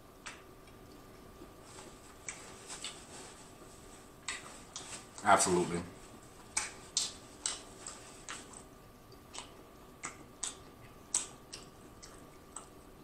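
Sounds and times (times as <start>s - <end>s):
wet mouth chewing clicks: 4.2s - 5.2s, 6.4s - 13.0s.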